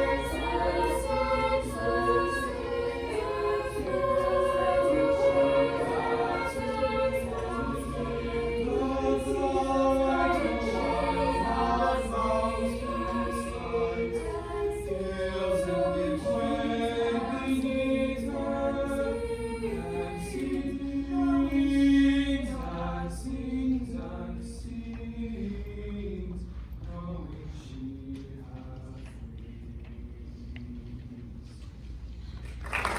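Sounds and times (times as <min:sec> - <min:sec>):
choir singing in harmony: 0:00.0 - 0:31.4.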